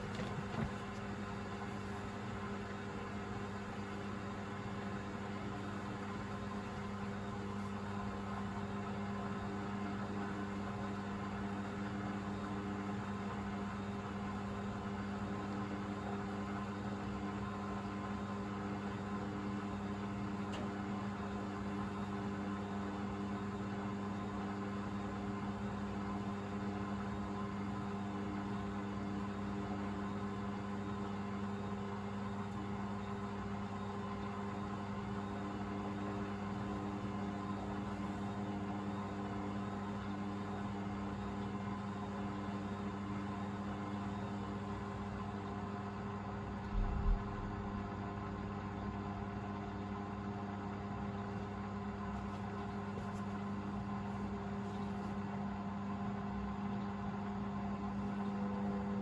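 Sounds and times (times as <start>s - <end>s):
drain pump humming: 0.0s - 1.0s, 46.6s - 48.7s
low double thump: 46.6s - 48.5s.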